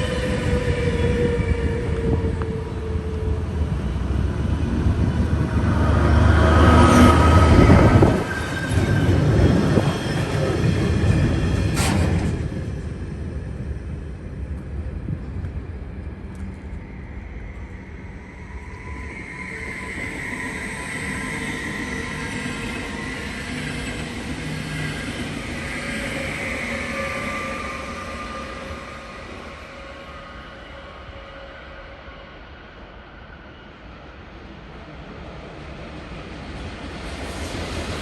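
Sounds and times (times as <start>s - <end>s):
electric train rumble: 0.0s - 38.0s.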